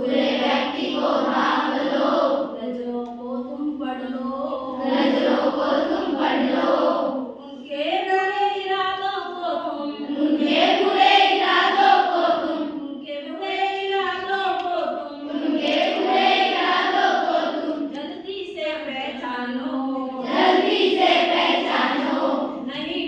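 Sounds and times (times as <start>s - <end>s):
children singing in unison: 0.0s - 2.6s, 4.3s - 7.4s, 9.9s - 13.6s, 14.5s - 18.0s, 20.2s - 22.6s.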